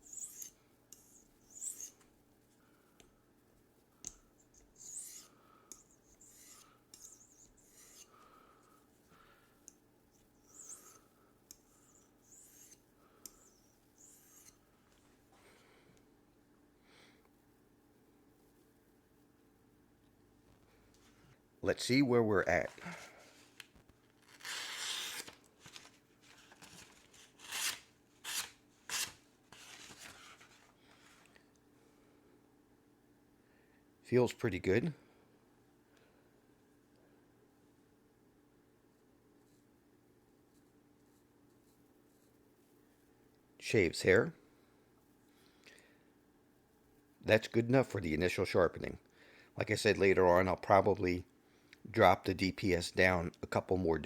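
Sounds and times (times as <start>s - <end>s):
knife scraping on sharpening stone: 0.0s - 2.0s, 4.1s - 8.1s, 10.4s - 14.6s, 27.4s - 29.1s.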